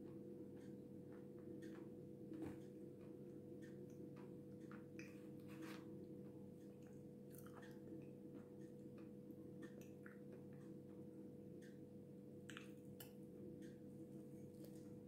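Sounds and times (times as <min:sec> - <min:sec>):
steady low hum: 0:00.0 - 0:15.0
close-mouthed chewing with crunches: 0:06.6 - 0:08.2.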